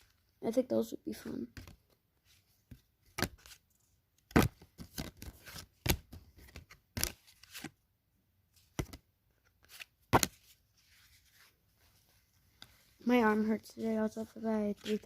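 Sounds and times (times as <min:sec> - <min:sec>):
cards snapping and tapping: 0:08.7 - 0:09.0.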